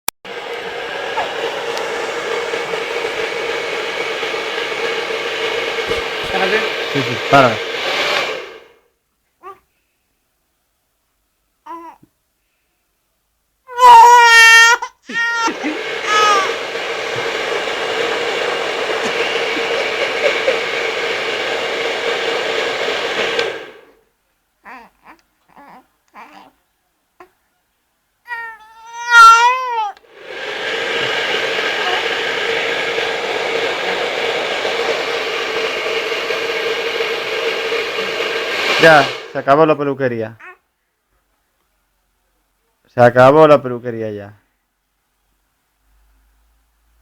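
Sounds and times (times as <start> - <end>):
hair dryer blowing: 0.3 - 8.8, 15.1 - 24.0, 29.1 - 39.9.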